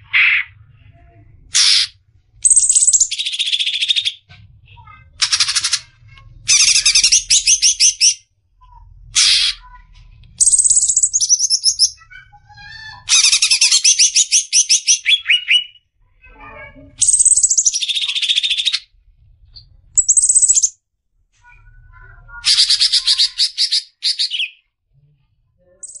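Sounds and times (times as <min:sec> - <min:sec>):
soft bird chirps: 0:02.4 - 0:08.7, 0:09.7 - 0:15.9, 0:17.0 - 0:18.9, 0:19.5 - 0:20.7, 0:25.6 - 0:26.0.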